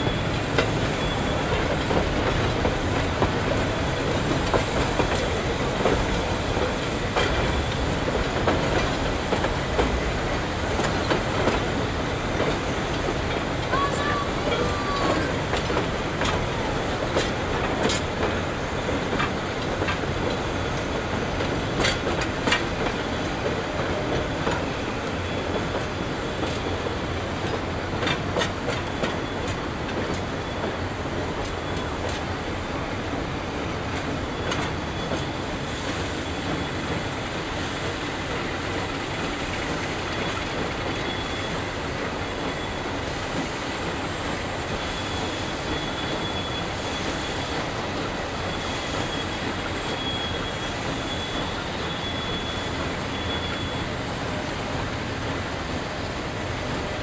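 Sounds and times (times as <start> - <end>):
high wheel squeal: 0.0 - 1.6, 13.6 - 15.5, 38.9 - 43.7, 44.3 - 54.3
train rumbling: 0.0 - 57.0.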